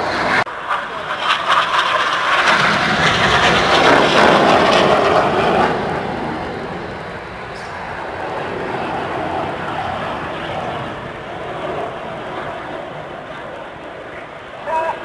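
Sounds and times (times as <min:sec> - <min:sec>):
jets passing in formation: 0:00.0 - 0:15.0.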